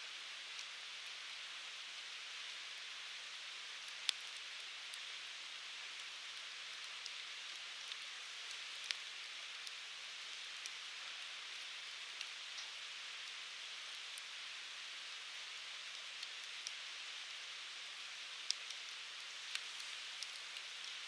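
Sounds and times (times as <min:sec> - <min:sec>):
firewood crackling and popping: 0:03.7 - 0:15.2, 0:15.8 - 0:21.0.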